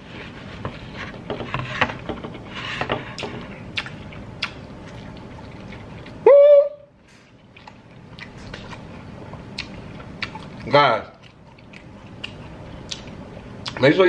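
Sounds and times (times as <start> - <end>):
wet chewing sounds: 3.1 - 6.2, 7.1 - 13.9.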